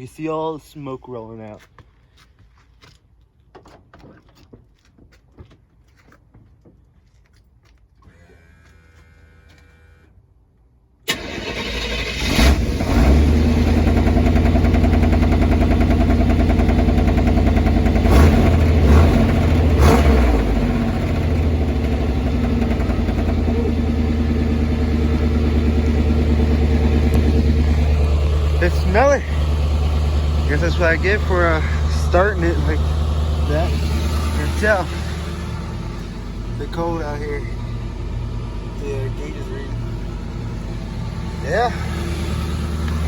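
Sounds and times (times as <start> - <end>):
truck engine starting and idling: 8.0 - 10.1, 11.0 - 43.0.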